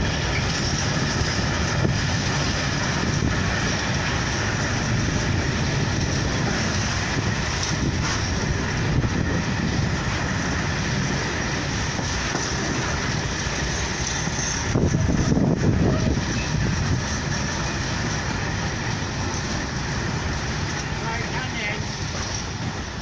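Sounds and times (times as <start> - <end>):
freight train wheels rumbling: 0.0 - 23.0.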